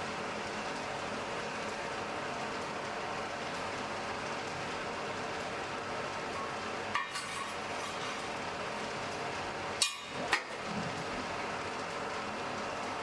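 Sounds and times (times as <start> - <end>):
forge fire hissing and crackling: 7.2 - 9.8.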